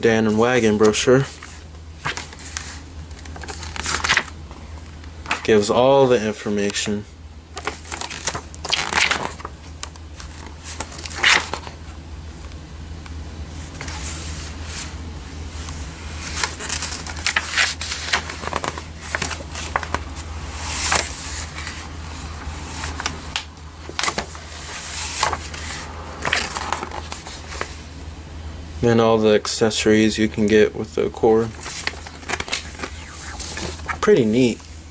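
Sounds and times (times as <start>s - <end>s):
steady low hum: 0.0s - 34.9s
paper pages rustling: 0.3s - 5.6s, 7.6s - 11.8s, 13.6s - 15.0s, 15.6s - 27.9s, 31.3s - 34.9s.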